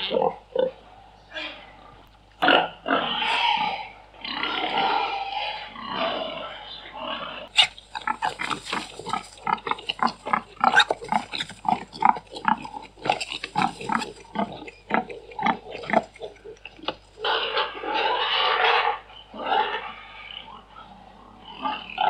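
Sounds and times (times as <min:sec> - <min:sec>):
pigs grunting: 0:00.0 - 0:22.0.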